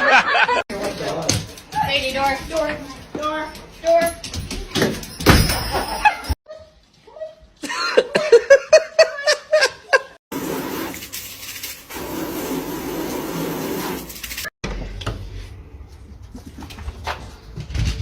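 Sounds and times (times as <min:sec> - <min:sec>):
person laughing: 0:07.6 - 0:10.2.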